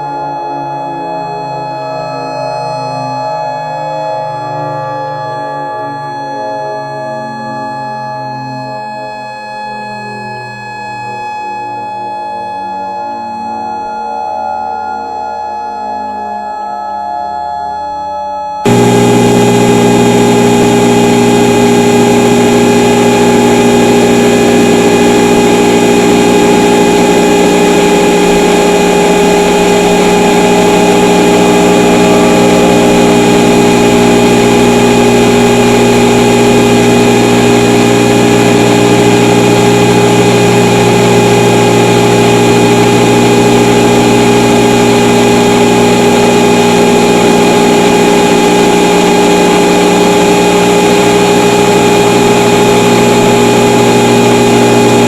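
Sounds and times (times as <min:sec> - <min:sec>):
electronic alert tone drone: 0:18.7 - 0:55.0.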